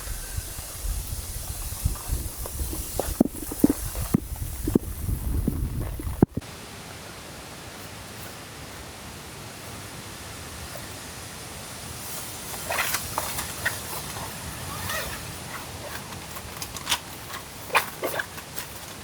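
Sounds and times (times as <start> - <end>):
rain hissing: 0.0 - 17.7
camping gear clicks and rustles: 0.1 - 6.4, 12.0 - 19.0.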